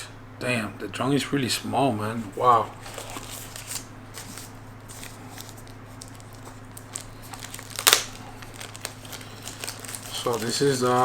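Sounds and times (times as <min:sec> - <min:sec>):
steady low hum: 0:00.0 - 0:11.0
packaging rustling: 0:02.4 - 0:11.0.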